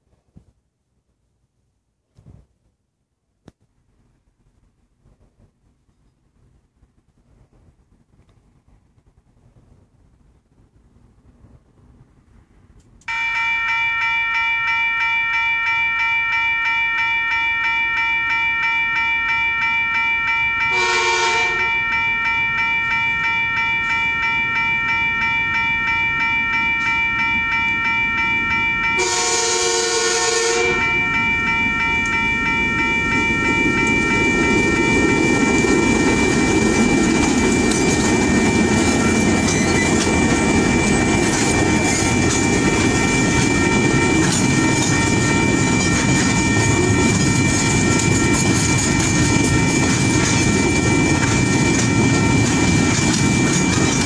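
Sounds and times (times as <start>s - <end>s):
level crossing bell ringing: 13.1s - 54.0s
train horn blasts: 20.6s - 22.0s, 29.0s - 31.9s
locomotive rumble: 28.4s - 54.0s
wheels clattering on rails: 30.7s - 54.0s.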